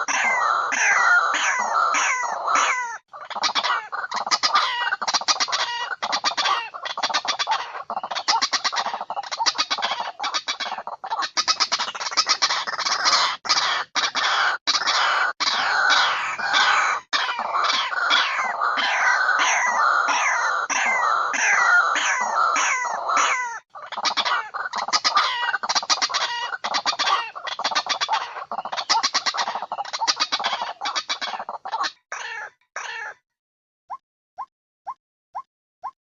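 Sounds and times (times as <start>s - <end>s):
chickens clucking and cackling: 0.0s - 33.2s.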